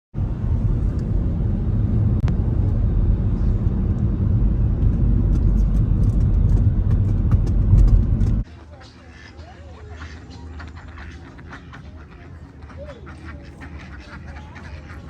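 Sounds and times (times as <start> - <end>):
car driving rumble: 0.1 - 8.5.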